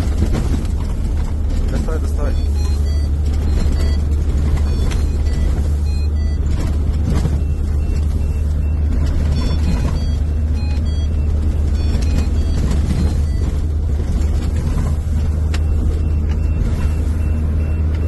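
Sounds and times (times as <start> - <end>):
vehicle engine and road rumble: 0.0 - 18.0
short high beeps: 2.1 - 6.5, 7.4 - 13.5.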